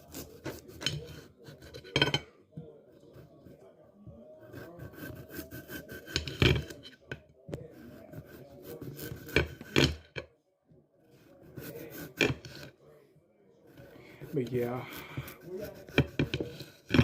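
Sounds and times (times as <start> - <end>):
knife scraping potatoes: 0.0 - 2.3, 4.4 - 10.2, 11.2 - 12.8, 13.7 - 17.0.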